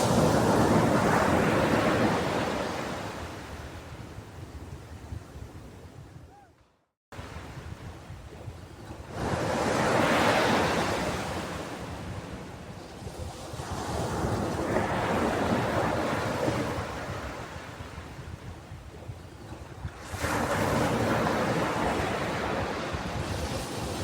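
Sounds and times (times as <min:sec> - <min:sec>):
ocean waves washing onto beach: 0:00.0 - 0:04.1, 0:07.2 - 0:24.0.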